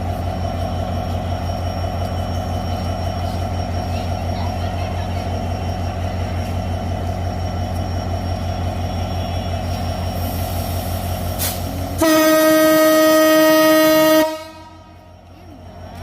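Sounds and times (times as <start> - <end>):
locomotive engine pulsing: 0.0 - 16.0
locomotive horn blast: 12.0 - 15.0.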